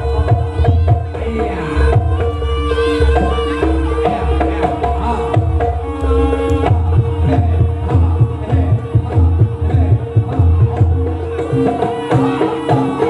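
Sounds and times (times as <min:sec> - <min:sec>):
hand drums playing fast: 0:00.0 - 0:13.0.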